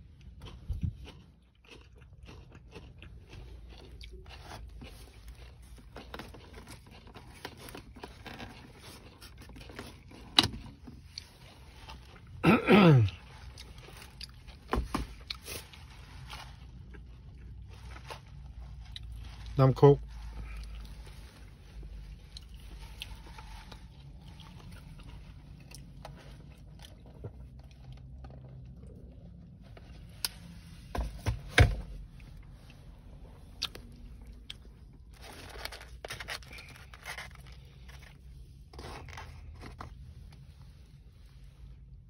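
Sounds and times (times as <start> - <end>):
crunching and chewing: 0.0 - 41.9
foam box scraping and rustling: 35.2 - 40.0.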